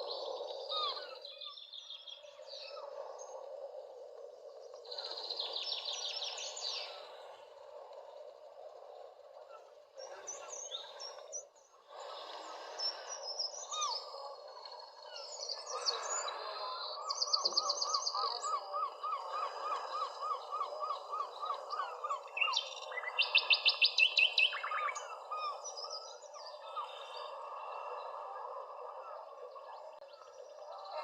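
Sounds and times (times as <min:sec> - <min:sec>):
birds calling: 0:09.2 - 0:31.0.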